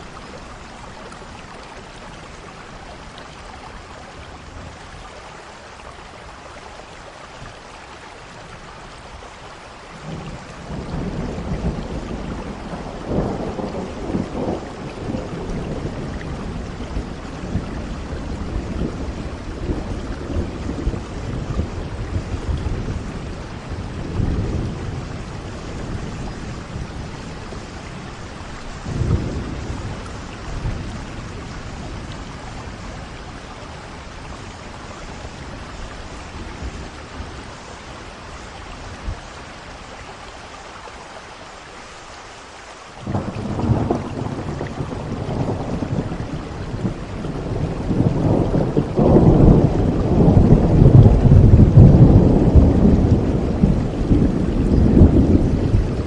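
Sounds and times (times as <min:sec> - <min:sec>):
steady rain: 0:00.0 - 0:56.0
rolling thunder: 0:10.0 - 0:37.8, 0:43.0 - 0:56.0.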